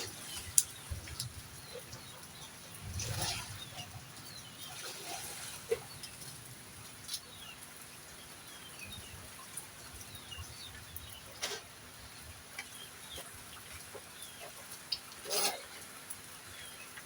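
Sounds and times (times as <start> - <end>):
heavy rain: 0.0 - 12.5
small birds chirping: 0.0 - 17.0.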